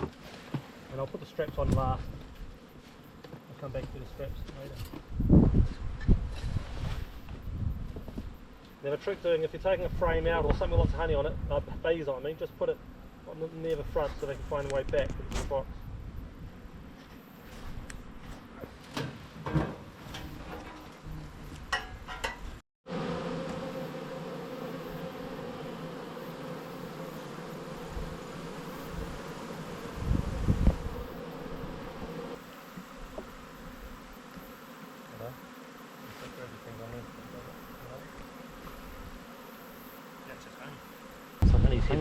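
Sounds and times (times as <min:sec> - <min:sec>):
bees buzzing: 0:22.9 - 0:41.5.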